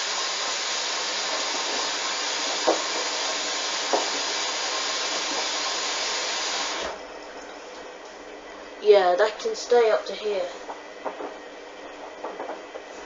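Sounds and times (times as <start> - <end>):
water hissing through inlet valve: 0.0 - 7.8
small knocks: 10.6 - 13.0.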